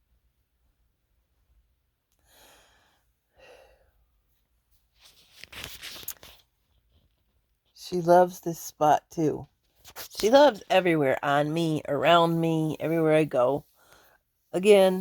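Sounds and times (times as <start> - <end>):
rustling and clicking: 5.0 - 7.8.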